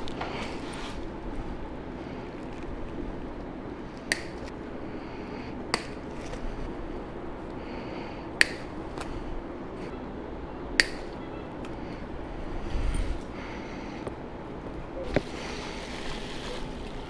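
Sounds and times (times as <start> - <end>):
low room hum: 0.0 - 17.0
sharp short snaps: 8.4 - 9.2, 10.8 - 11.2.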